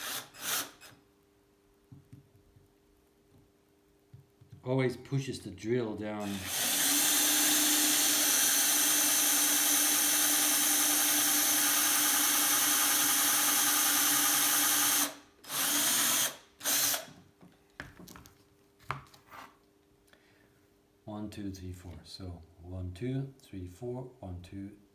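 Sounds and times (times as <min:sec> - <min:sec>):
electric drill running: 0:00.0 - 0:01.0, 0:06.2 - 0:17.1.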